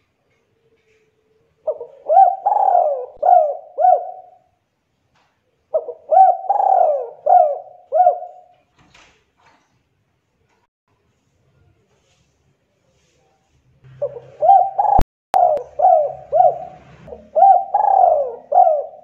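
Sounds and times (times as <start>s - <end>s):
dove cooing: 1.6s - 4.5s, 5.7s - 8.5s, 14.0s - 19.0s.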